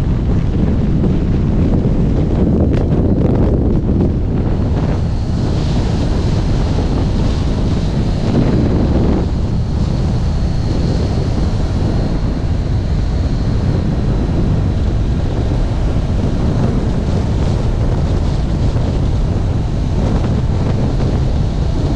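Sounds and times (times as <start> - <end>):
wind buffeting microphone: 0.0 - 21.9.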